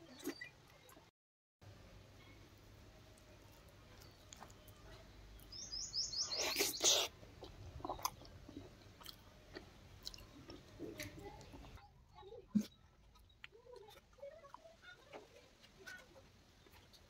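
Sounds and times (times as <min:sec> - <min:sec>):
bird chirping: 0:03.9 - 0:07.1.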